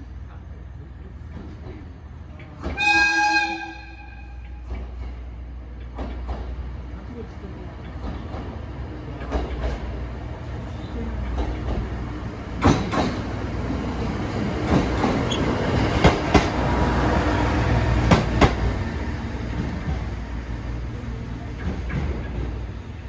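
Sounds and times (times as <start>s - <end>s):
diesel railcar drone: 0.0s - 23.0s
wheels clacking over rail joints: 7.7s - 23.0s.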